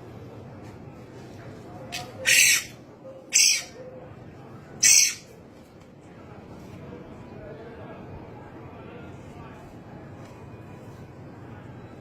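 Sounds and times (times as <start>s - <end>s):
small bird harsh screeches: 2.2s - 3.8s, 4.8s - 5.3s.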